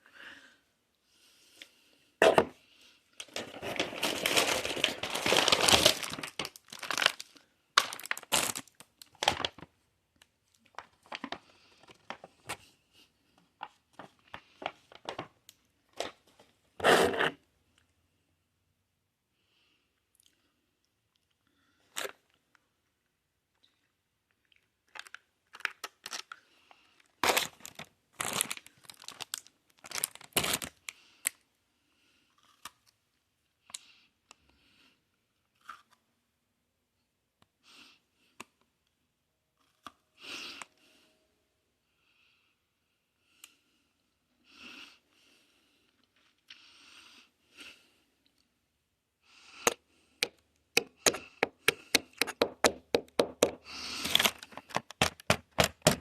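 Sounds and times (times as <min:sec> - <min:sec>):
cookie packaging crinkling: 0:03.2 - 0:12.7, 0:13.6 - 0:17.2, 0:23.6 - 0:31.4, 0:49.6 - 0:56.0.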